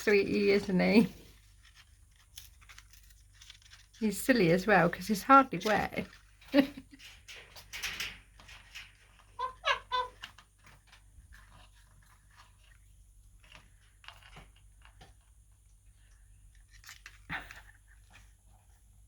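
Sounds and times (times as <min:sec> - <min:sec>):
parrot chuckling calls: 0:09.4 - 0:10.1.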